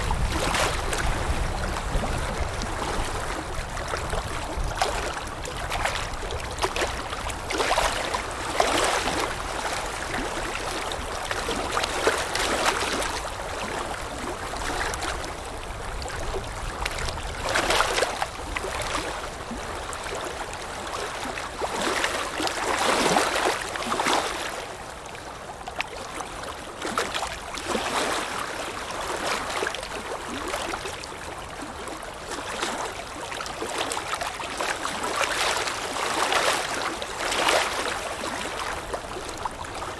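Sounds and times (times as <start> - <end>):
wind rumbling: 0.0 - 4.8
water lapping in small splashes: 0.0 - 39.9.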